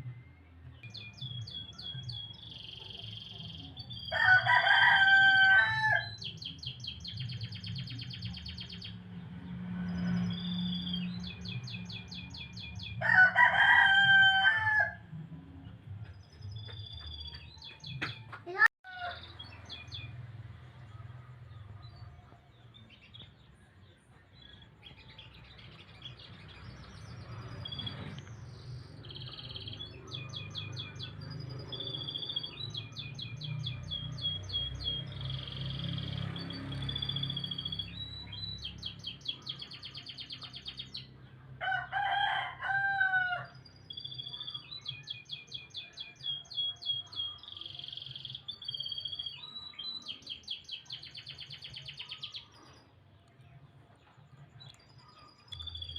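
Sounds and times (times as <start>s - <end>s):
canary singing trills: 0.8s - 9.1s, 16.0s - 41.2s, 43.5s - 55.9s
rooster crowing: 4.1s - 6.2s, 13.0s - 15.1s, 41.6s - 43.6s.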